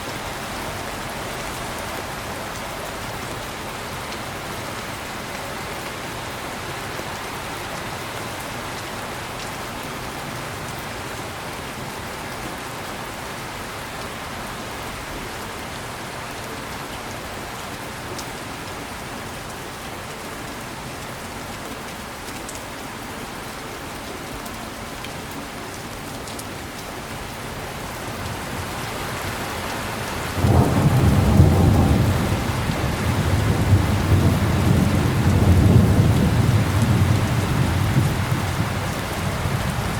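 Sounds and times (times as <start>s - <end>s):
heavy rain: 0.0s - 39.9s
deep rumble of thunder: 30.4s - 39.9s.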